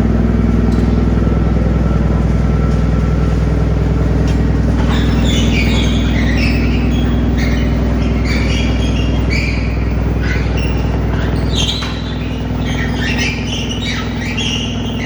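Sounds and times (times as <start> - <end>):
wood chipper engine hum: 0.0 - 15.0
high falling squeals: 4.7 - 15.0.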